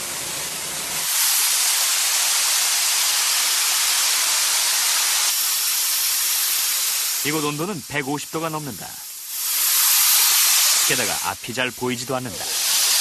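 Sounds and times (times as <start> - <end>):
steam hissing from pipe: 0.0 - 13.0.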